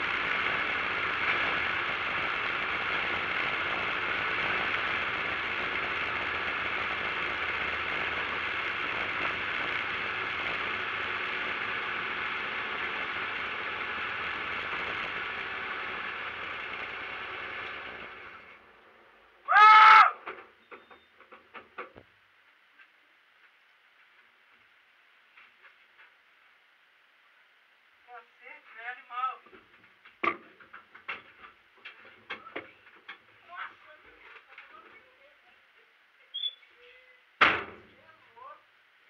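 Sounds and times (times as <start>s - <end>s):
car engine droning: 0.0s - 20.9s.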